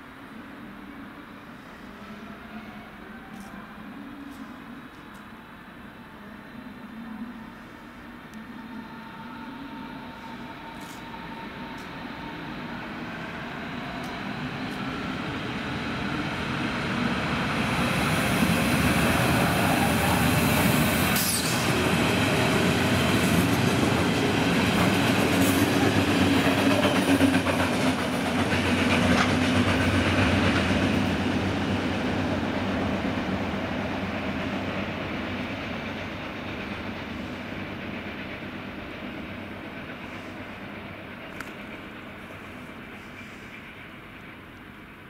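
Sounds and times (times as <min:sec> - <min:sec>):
electric train wheels clattering: 0:21.0 - 0:31.3.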